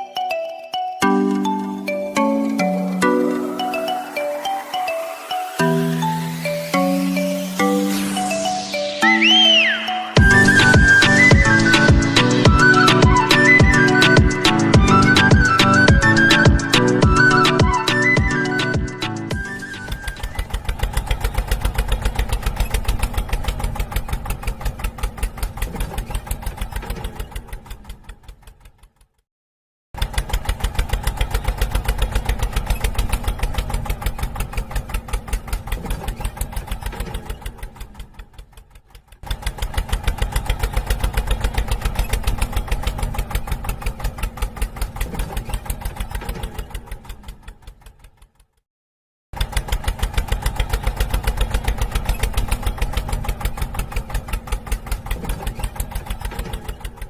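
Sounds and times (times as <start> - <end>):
small engine chugging: 9.4 - 29.2, 30.0 - 48.6, 49.3 - 57.0.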